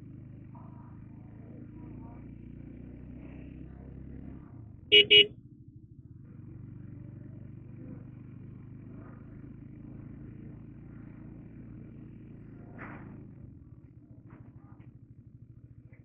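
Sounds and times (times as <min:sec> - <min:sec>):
motorcycle engine running: 0:00.0 - 0:16.0
loud horn beep: 0:04.9 - 0:05.3.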